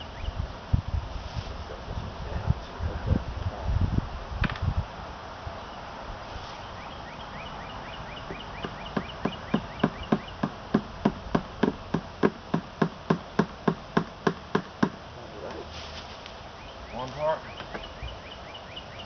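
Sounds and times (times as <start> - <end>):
hammer tapping a nail: 8.3 - 15.0.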